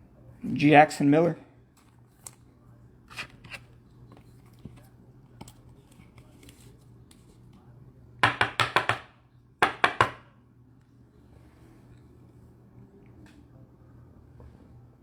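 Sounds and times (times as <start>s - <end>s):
trading cards tapping on a table: 8.2s - 10.2s.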